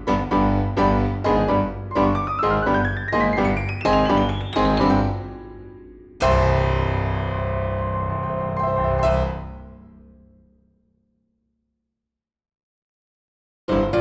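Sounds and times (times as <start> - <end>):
piano chords: 0.0 - 10.3, 13.7 - 14.0.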